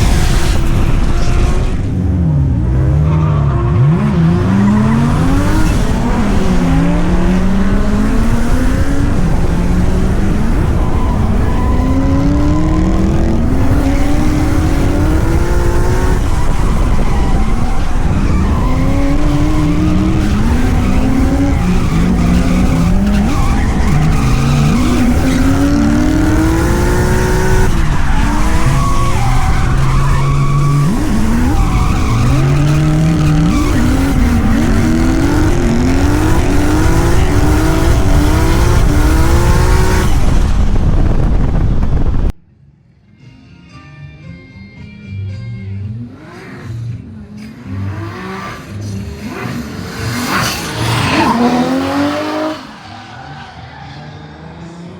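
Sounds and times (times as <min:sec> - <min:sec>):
car engine revving hard: 0:00.0 - 0:42.3, 0:46.0 - 0:53.0
tyres squealing: 0:16.0 - 0:39.0.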